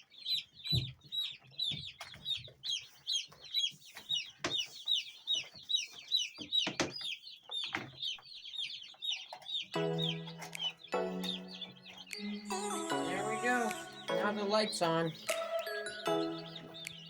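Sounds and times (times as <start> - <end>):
chicks peeping: 0.0 - 17.0
music: 9.8 - 17.0.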